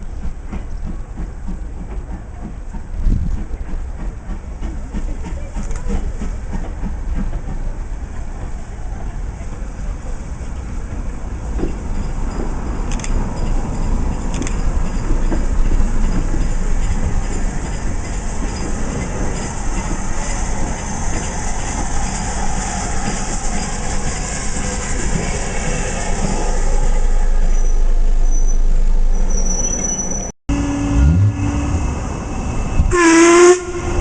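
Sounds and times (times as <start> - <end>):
train wheels clicking: 0.0 - 27.0
diesel train rumbling past: 0.0 - 34.0.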